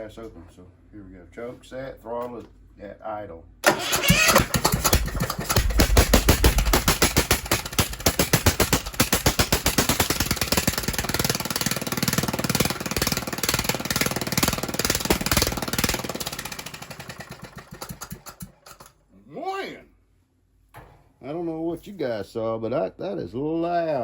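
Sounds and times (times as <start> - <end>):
small engine exhaust cracking: 3.6 - 19.0.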